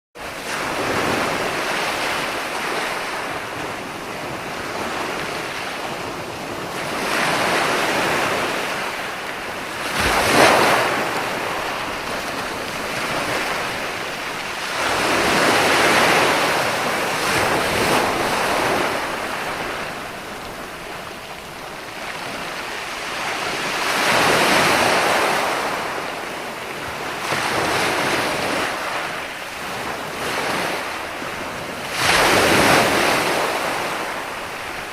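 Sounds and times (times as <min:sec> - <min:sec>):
ocean waves breaking on shore: 0:00.2 - 0:34.9.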